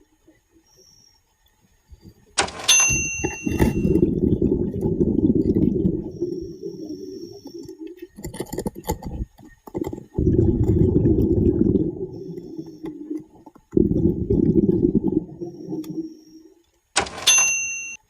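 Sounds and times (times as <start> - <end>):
sharp metallic clink: 2.4 - 4.0, 17.0 - 18.0
underwater air bubbling: 3.5 - 16.6.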